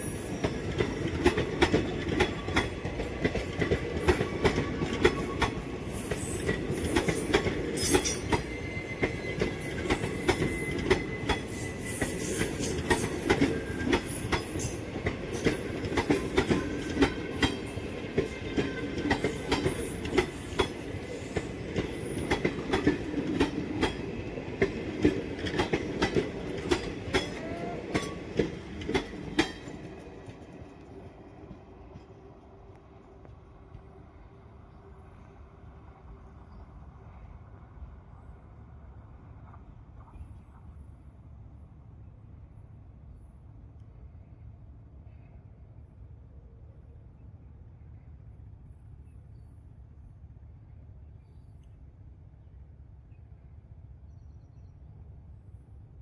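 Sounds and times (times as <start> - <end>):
train wheels rumbling on track: 0.0 - 46.3
wheels clicking over rail joints: 0.4 - 31.0
wheel squeal: 7.8 - 14.7.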